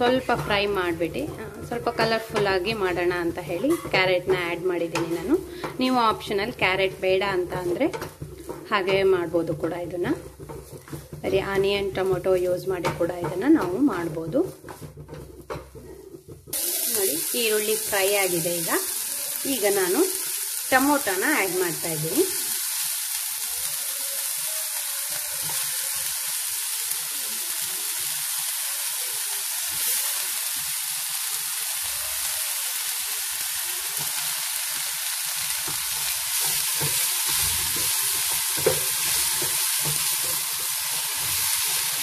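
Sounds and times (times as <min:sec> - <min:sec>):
wooden spatula scraping and knocking pan: 0:00.0 - 0:18.7, 0:35.4 - 0:42.0
onion and tomato sizzling in oil: 0:00.0 - 0:42.0.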